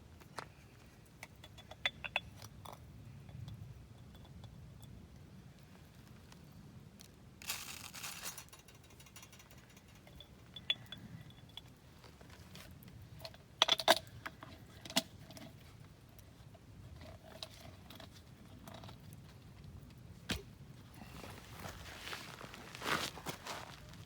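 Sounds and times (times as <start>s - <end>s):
coffee beans popping and crackling: 7.0s - 10.0s
coffee beans rattling in roaster: 7.4s - 10.2s.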